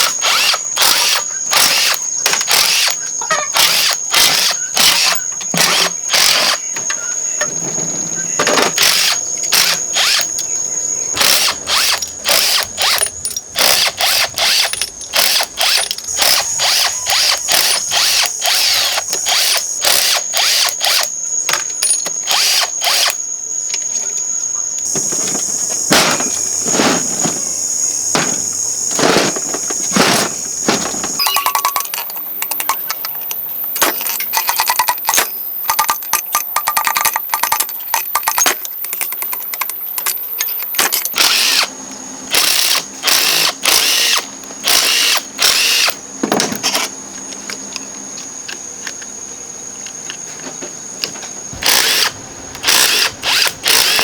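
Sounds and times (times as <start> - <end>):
handheld power tool bursts: 0.0 - 6.7, 8.4 - 10.3, 11.2 - 21.1, 21.8 - 23.2, 25.0 - 27.4, 28.1 - 32.8, 37.0 - 41.7, 42.3 - 46.9, 51.6 - 54.0.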